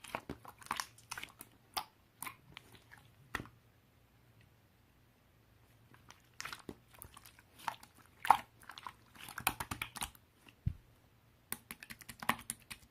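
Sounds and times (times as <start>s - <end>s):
slime squished by hands: 0.0s - 3.5s, 6.0s - 10.7s.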